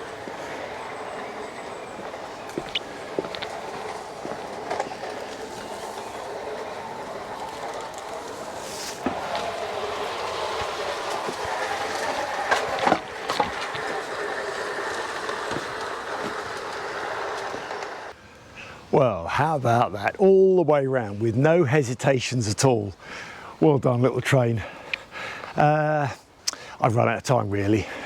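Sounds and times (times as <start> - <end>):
wheel clicks: 0.0 - 18.1
model train rolling: 0.0 - 18.2.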